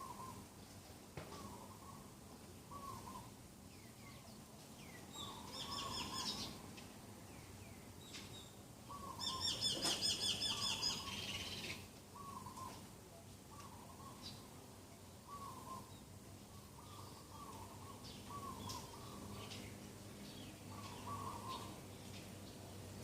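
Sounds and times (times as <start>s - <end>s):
rapid high chattering birdsong: 1.4s - 6.6s, 7.3s - 12.8s, 13.6s - 23.0s
short low bird calls: 8.9s - 12.8s, 15.2s - 19.7s, 20.4s - 21.8s.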